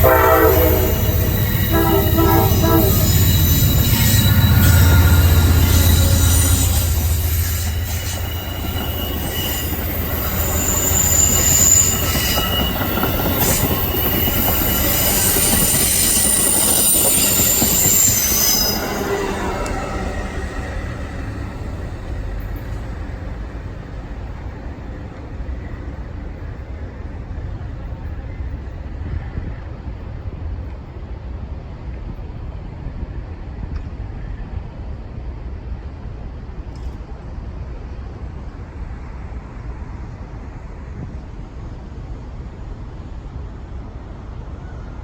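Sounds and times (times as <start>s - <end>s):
train wheels squealing on rails: 0.0s - 29.8s
train rumble: 0.0s - 45.0s.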